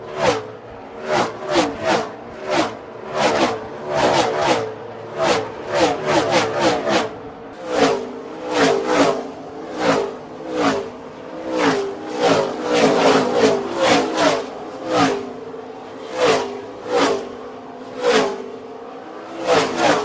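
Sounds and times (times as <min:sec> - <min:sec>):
race cars whizzing past: 0:00.0 - 0:20.0.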